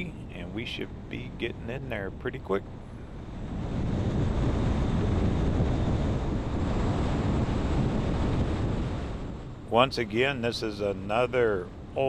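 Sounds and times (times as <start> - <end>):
vehicle road and wind noise: 0.0 - 12.0.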